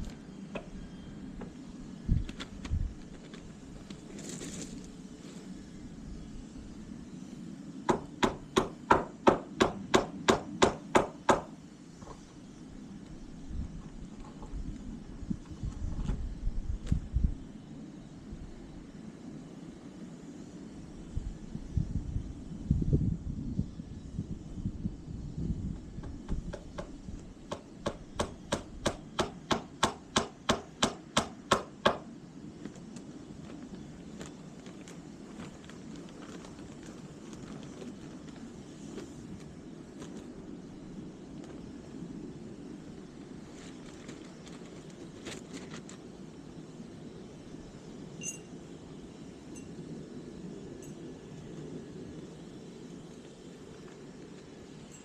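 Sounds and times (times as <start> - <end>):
rapid hammer blows: 7.9 - 11.6, 26.0 - 32.1.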